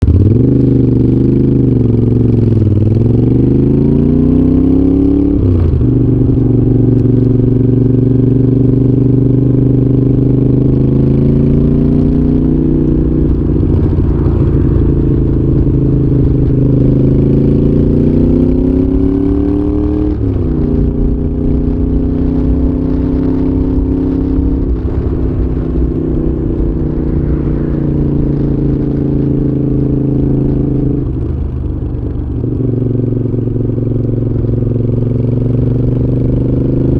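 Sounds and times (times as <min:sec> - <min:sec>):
motorcycle engine shifting gears: 0:00.0 - 0:36.9
wind rush: 0:11.7 - 0:32.8.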